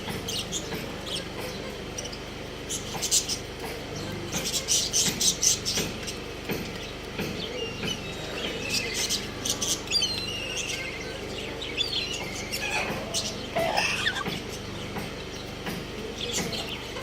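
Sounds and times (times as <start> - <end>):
small birds chirping and twittering: 0.0 - 17.0
warbling bird trill: 8.6 - 14.8
lower louder bird call: 13.5 - 14.4.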